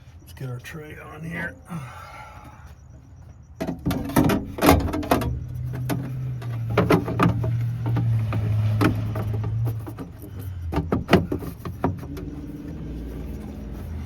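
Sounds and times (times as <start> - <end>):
steady low hum: 0.0 - 14.0
metal tray clunking and rattling: 3.6 - 12.2.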